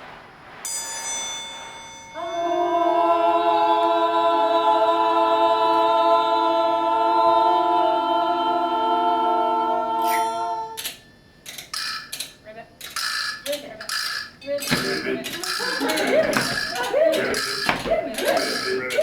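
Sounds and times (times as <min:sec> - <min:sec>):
voices holding a chord: 0:02.2 - 0:10.8, 0:13.5 - 0:19.0.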